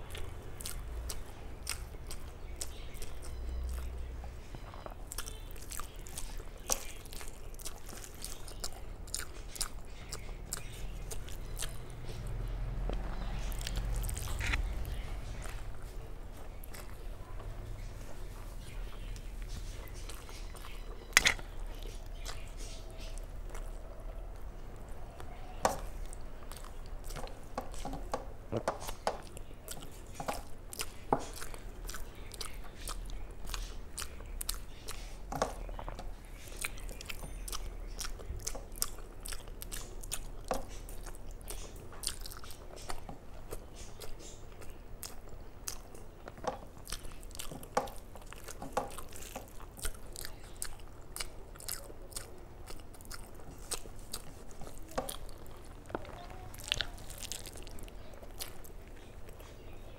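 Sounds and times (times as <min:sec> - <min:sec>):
faint low hum: 0:00.0 - 0:59.9
person chewing food: 0:00.0 - 0:59.9.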